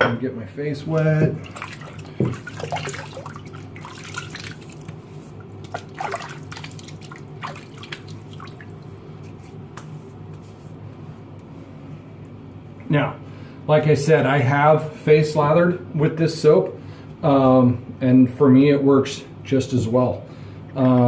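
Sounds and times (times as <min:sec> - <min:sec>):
water splashing at a sink: 0:00.9 - 0:09.0.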